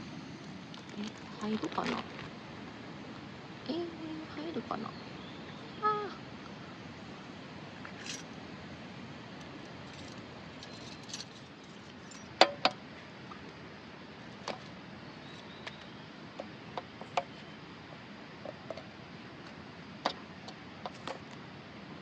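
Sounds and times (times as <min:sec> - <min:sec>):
light clicks and clinks: 0:09.4 - 0:12.8.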